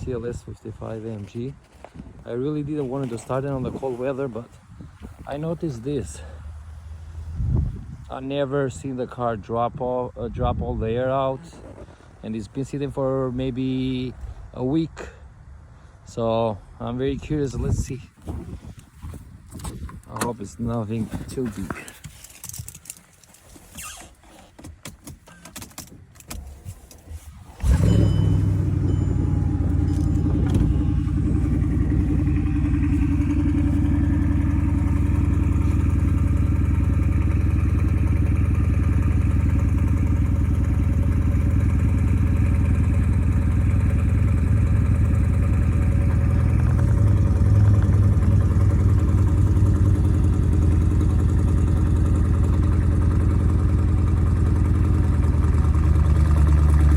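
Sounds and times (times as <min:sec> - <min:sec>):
car engine starting and idling: 0:24.7 - 0:56.9.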